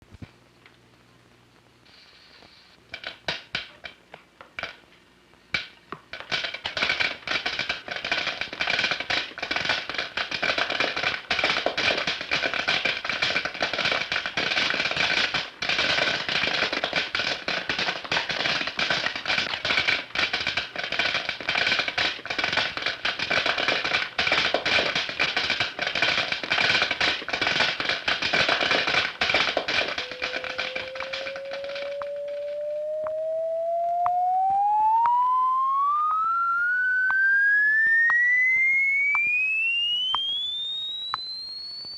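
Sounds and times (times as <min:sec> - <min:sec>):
rapid clicking crackle: 0:00.0 - 0:41.9
rising tone: 0:30.0 - 0:41.9.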